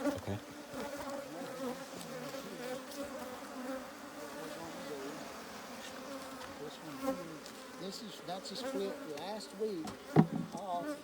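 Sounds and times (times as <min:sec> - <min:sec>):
honey bees buzzing: 0:00.0 - 0:11.0.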